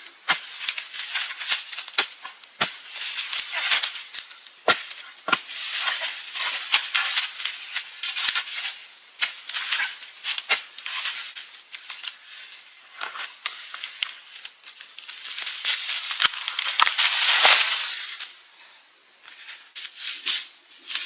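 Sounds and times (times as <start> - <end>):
crackling and rustling clicks: 0.0 - 18.4, 19.2 - 21.0.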